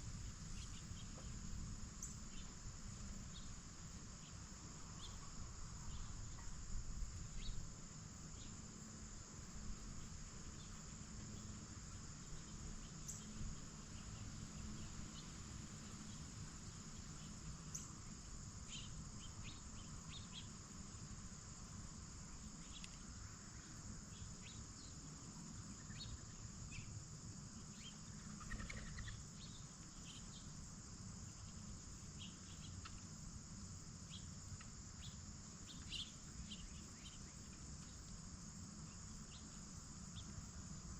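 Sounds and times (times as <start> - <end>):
crickets chirping: 0.0 - 40.9
faint ticks and clicks: 22.6 - 23.1, 34.5 - 34.8.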